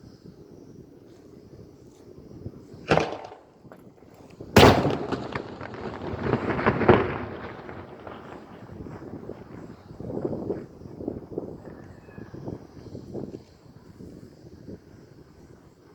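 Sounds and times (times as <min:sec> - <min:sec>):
firework bangs: 0:02.8 - 0:10.8
firework crackling pops: 0:02.8 - 0:11.6.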